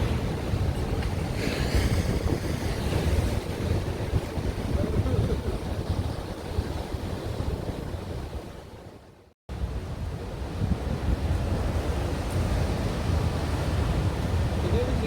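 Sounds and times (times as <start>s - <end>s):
ocean surf breaking: 0.0s - 8.7s
wind rumbling on microphone: 0.0s - 15.0s.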